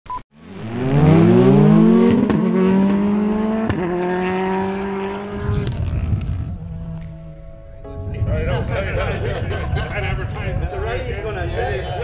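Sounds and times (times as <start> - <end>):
car engine revving: 0.4 - 7.6.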